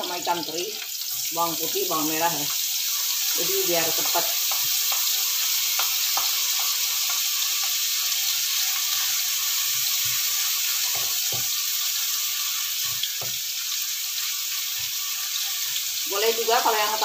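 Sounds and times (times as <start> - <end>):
food sizzling in oil: 0.0 - 17.0
wooden spatula knocking pan: 3.9 - 7.9, 10.8 - 11.5, 13.0 - 13.4.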